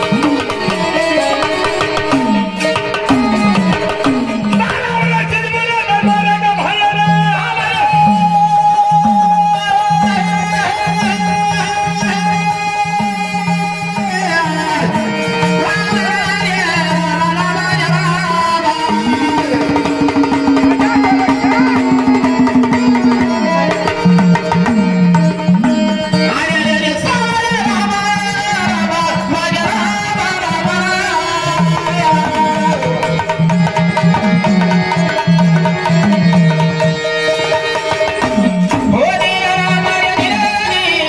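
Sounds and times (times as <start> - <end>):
hand drum beat: 0.0 - 7.0, 15.9 - 41.0
devotional folk music: 0.0 - 41.0.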